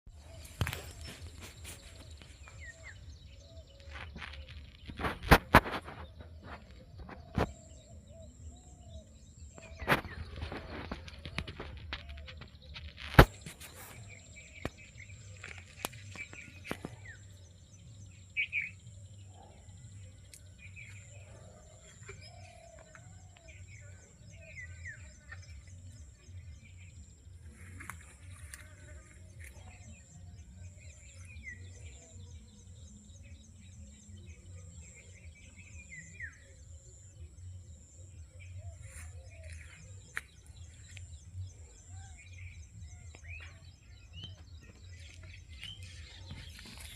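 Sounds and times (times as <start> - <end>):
birds chirping and calling: 0.1 - 46.9.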